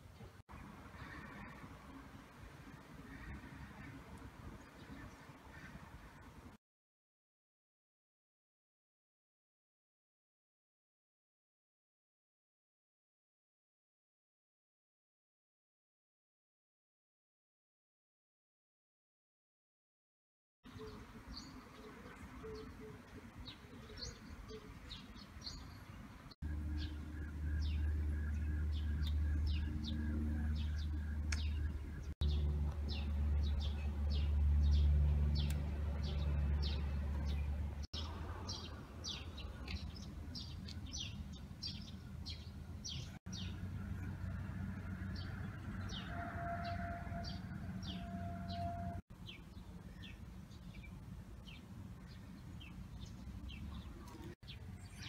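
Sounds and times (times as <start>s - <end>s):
small birds chirping: 20.7s - 44.2s, 45.1s - 55.0s.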